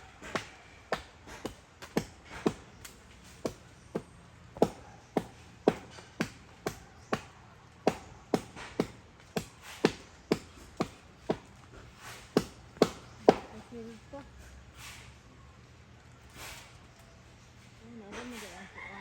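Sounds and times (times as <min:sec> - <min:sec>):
blade chopping wood: 0:00.2 - 0:13.6.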